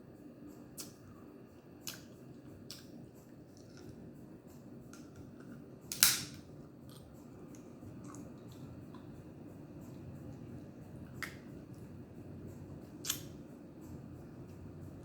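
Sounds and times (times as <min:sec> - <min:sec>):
crab shell cracking by hand: 0:05.9 - 0:07.0.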